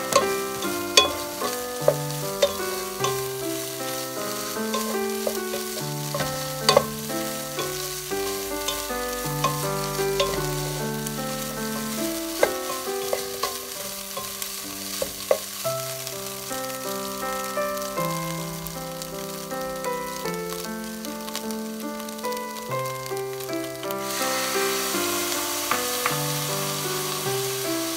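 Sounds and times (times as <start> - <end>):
wooden spatula scraping a pan: 0.0 - 15.6
background music with held notes: 0.0 - 27.9
food sizzling in a frying pan: 0.0 - 27.9.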